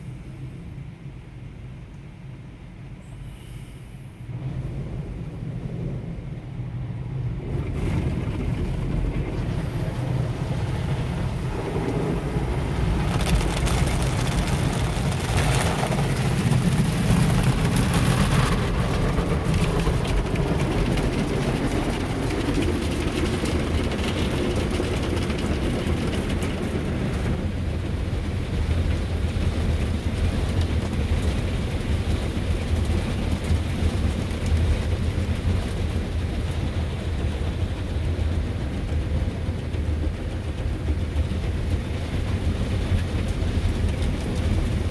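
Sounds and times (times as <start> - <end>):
car wash machine rumbling: 4.3 - 44.9
brushes washing against car: 12.0 - 24.1.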